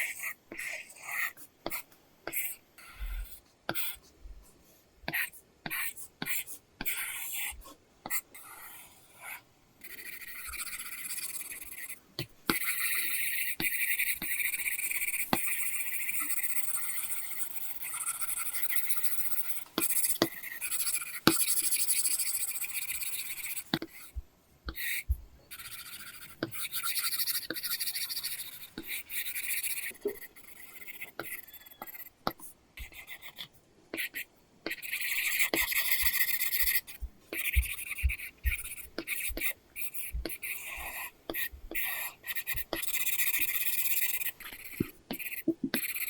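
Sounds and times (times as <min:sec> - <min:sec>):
stylus scratching on screen: 0:00.0 - 0:04.1, 0:05.1 - 0:46.0
stylus tapping on screen: 0:34.7 - 0:43.6, 0:44.4 - 0:46.0.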